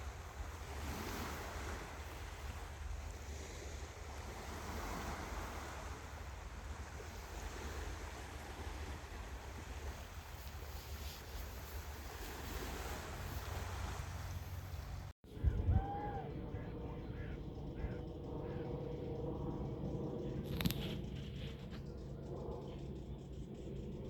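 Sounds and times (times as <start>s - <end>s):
surf rushing: 0.0s - 15.1s
wind buffeting microphone: 0.0s - 24.0s.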